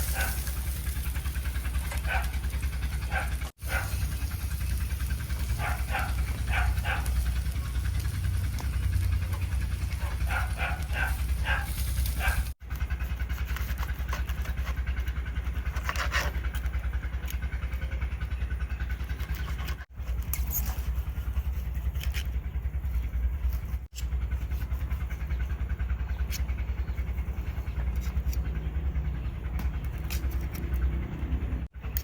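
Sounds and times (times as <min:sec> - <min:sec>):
steady low rumble: 0:00.0 - 0:13.8, 0:16.4 - 0:32.0
dog vocalising: 0:00.1 - 0:00.4, 0:02.0 - 0:02.4, 0:03.1 - 0:04.0, 0:05.5 - 0:07.7, 0:09.8 - 0:12.5.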